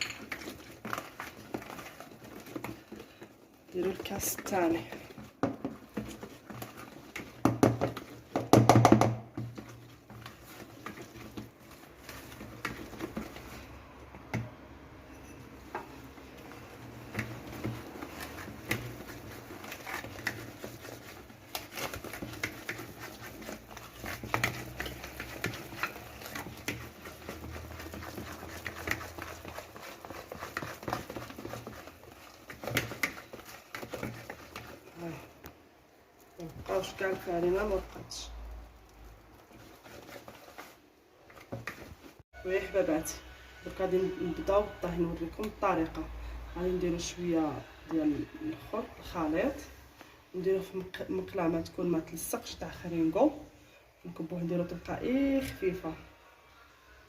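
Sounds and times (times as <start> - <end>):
whisk clicking against a bowl: 0.0 - 14.5, 15.8 - 35.3
whisk knocking clatter: 0.0 - 14.5, 15.7 - 34.9.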